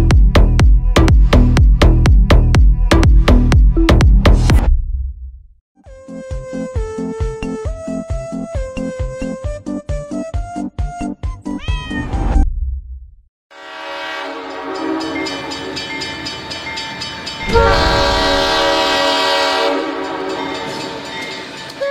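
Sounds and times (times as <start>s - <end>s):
train horn: 13.5s - 15.8s, 17.4s - 21.1s
rising pitch glide: 17.4s - 19.2s
train wheels clattering on rails: 19.9s - 21.9s.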